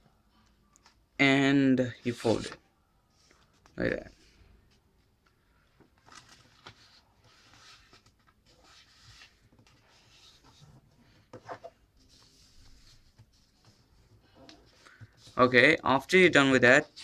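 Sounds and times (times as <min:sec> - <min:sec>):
paper rustling and crinkling: 0:05.8 - 0:15.5.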